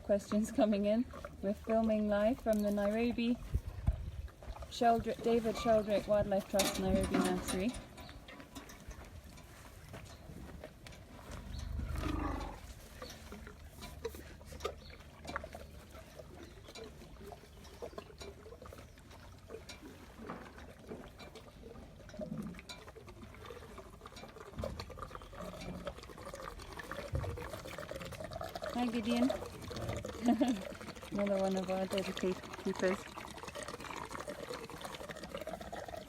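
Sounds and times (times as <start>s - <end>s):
elephant low rumble: 10.2s - 19.0s.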